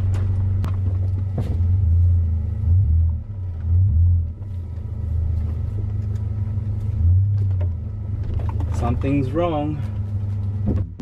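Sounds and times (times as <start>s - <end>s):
car engine humming from inside: 0.0s - 11.0s.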